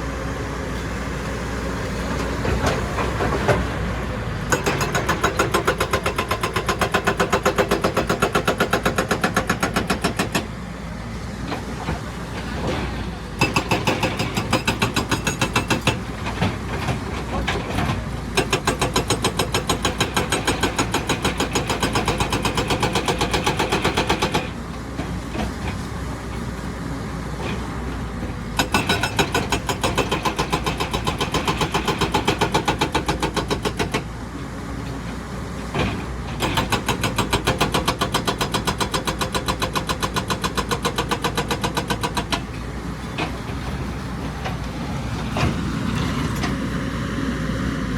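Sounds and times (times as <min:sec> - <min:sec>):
hydraulic rock breaker hammering rock: 0:04.4 - 0:10.5, 0:11.7 - 0:24.6, 0:28.6 - 0:34.1, 0:35.7 - 0:42.6
diesel engine running: 0:42.2 - 0:47.9.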